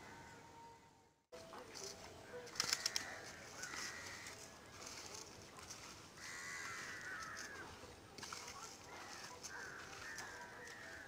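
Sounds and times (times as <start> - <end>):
birds calling: 2.2 - 11.0.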